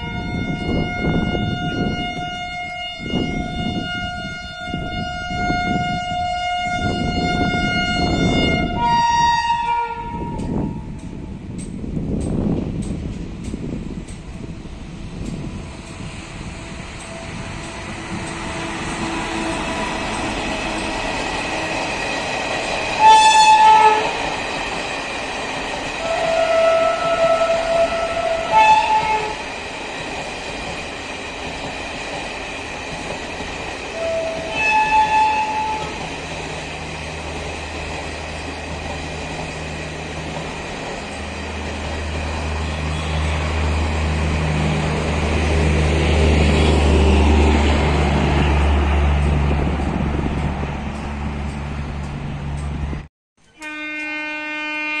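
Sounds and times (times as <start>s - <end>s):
locomotive horn blasts: 0.0s - 10.8s, 23.0s - 24.2s, 26.0s - 29.4s, 33.9s - 36.0s, 42.5s - 43.8s, 46.5s - 47.2s, 53.4s - 55.0s
train running rumble: 0.0s - 54.2s.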